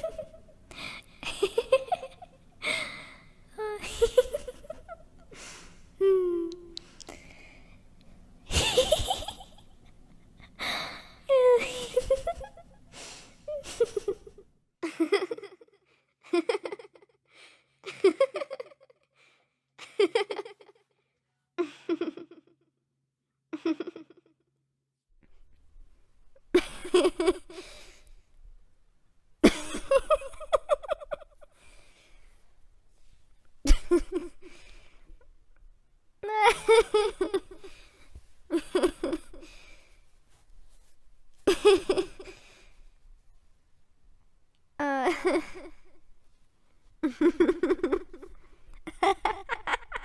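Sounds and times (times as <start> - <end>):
woman laughing flirtatiously: 0.0 - 0.6, 1.2 - 2.4, 3.6 - 5.3, 8.5 - 10.6, 11.3 - 12.9, 13.5 - 15.7, 29.4 - 31.5, 33.6 - 34.5, 36.3 - 37.8, 38.5 - 39.6, 41.5 - 42.4, 47.0 - 50.0
woman giggling: 0.0 - 2.4, 3.5 - 5.3, 6.0 - 6.8, 8.5 - 10.6, 11.3 - 12.9, 13.5 - 17.1, 17.8 - 19.0, 19.8 - 20.8, 21.6 - 22.6, 23.6 - 24.3, 29.4 - 31.5, 33.6 - 34.5, 36.2 - 37.8, 38.5 - 39.6, 41.5 - 42.4, 44.8 - 45.9, 47.0 - 50.0
woman gasping and moaning: 2.6 - 7.4, 10.5 - 14.3.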